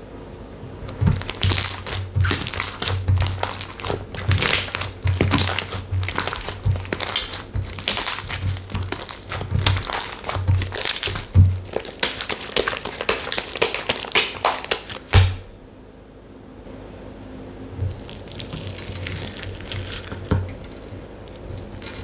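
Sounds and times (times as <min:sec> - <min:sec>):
slime squelching: 0:00.8 - 0:15.5, 0:17.8 - 0:22.0
slime crackling and popping: 0:00.9 - 0:15.5, 0:17.9 - 0:20.8.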